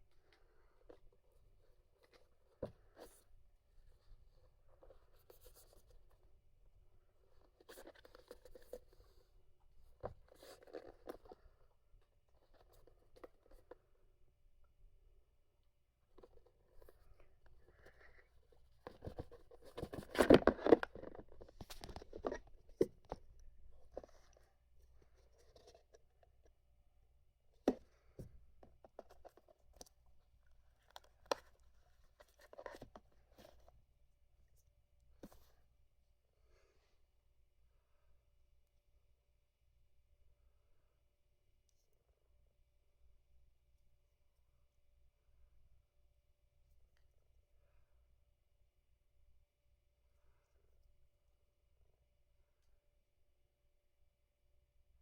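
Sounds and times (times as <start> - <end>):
faint packaging rustling: 7.0 - 14.1, 16.0 - 26.6, 27.5 - 33.8
packaging rustling and tapping: 18.8 - 23.2.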